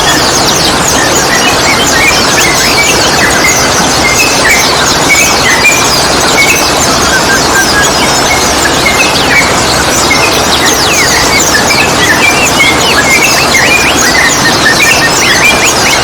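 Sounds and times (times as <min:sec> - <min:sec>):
bird chirps and whistles: 0:00.0 - 0:16.0.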